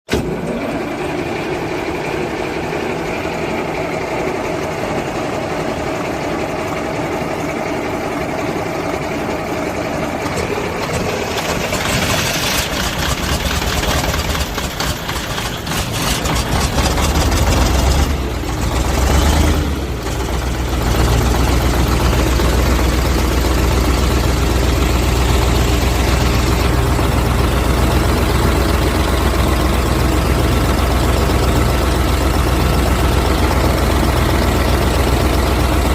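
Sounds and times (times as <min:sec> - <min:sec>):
diesel engine cranking and starting: 0:00.1 - 0:35.9.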